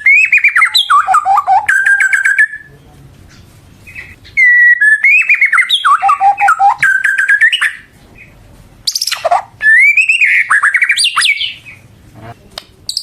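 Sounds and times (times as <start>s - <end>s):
bird singing whistled phrases: 0.0s - 2.7s, 4.0s - 7.9s, 8.9s - 11.8s.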